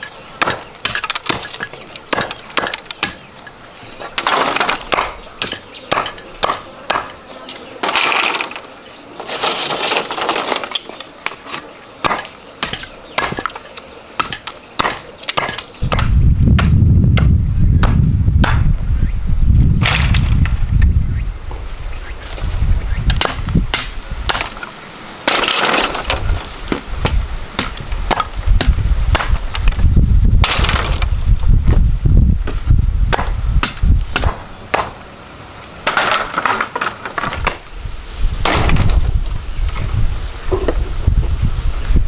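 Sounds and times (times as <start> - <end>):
sharp wooden knocks and clicks: 0.4 - 3.3, 4.1 - 7.1, 9.8 - 18.7.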